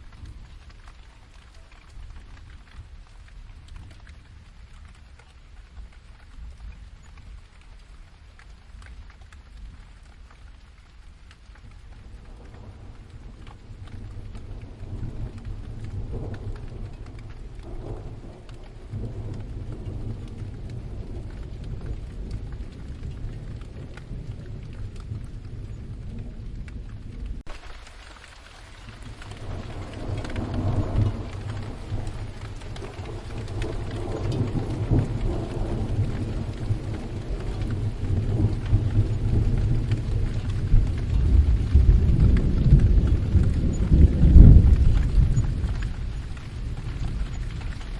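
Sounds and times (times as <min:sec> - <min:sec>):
steady rain: 0:00.0 - 0:47.9
rolling thunder: 0:12.0 - 0:27.6, 0:28.7 - 0:47.9.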